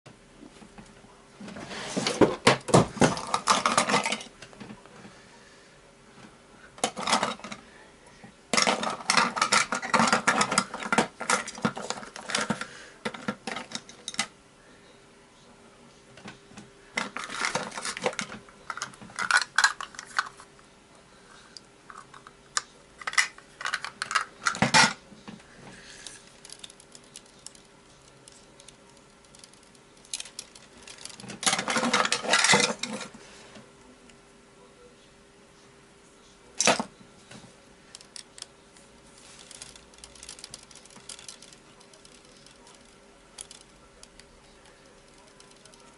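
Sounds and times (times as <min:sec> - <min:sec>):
small parts clicking and clattering: 0:06.8 - 0:07.6, 0:08.5 - 0:14.3, 0:17.0 - 0:20.4, 0:21.9 - 0:25.0, 0:26.0 - 0:33.1, 0:37.9 - 0:38.5, 0:39.2 - 0:45.9.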